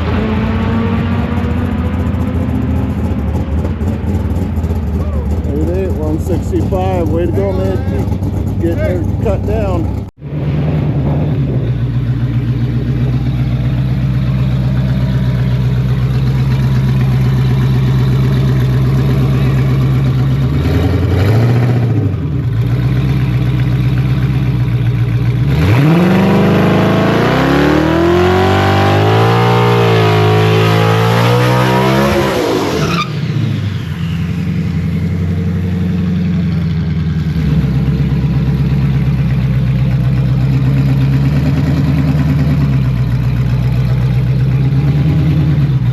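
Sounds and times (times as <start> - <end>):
car engine idling and revving: 0.0 - 45.9.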